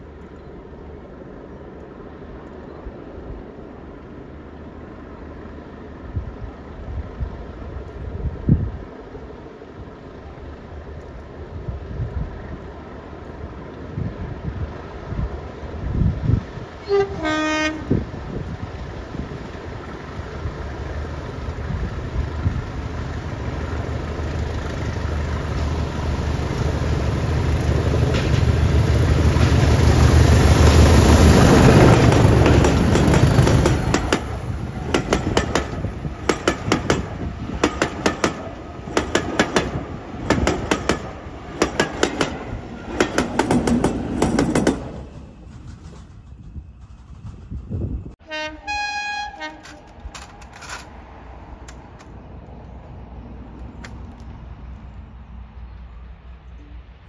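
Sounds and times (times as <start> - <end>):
diesel locomotive engine rumble: 0.0 - 57.0
train wheels clicking over rail joints: 16.5 - 48.2, 49.3 - 55.0.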